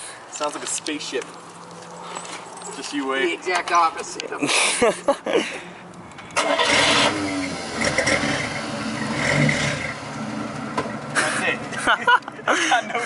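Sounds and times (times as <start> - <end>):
car engine cranking: 6.2 - 11.4
car engine idling: 6.4 - 11.8.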